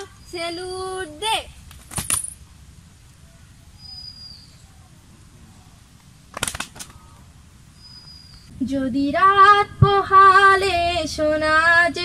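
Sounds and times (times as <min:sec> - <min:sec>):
high bird call: 0:03.2 - 0:05.0
sharp clicks: 0:06.3 - 0:07.0.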